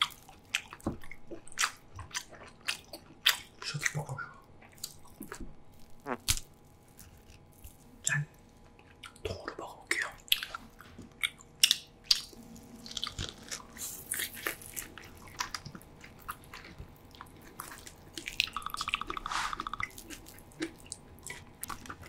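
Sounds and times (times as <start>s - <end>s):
close chewing with wet smacks: 0.0s - 6.4s, 8.7s - 22.0s.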